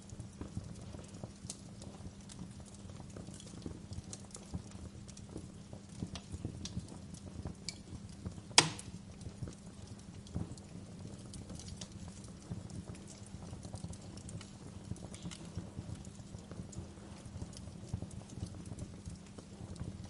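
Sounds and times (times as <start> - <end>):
wood fire crackling: 0.0 - 20.0
loud sharp pop: 8.6 - 8.9.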